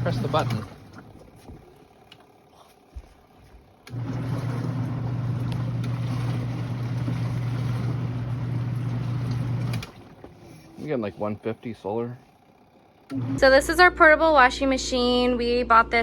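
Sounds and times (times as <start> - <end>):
water churning: 0.0 - 2.1, 3.9 - 11.5
washing machine motor humming: 0.0 - 14.6.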